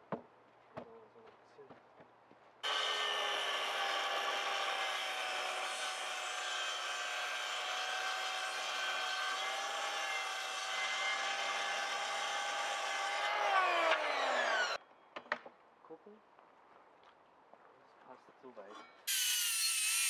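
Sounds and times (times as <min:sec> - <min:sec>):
circular saw cutting timber: 0:02.6 - 0:14.8, 0:19.1 - 0:20.0.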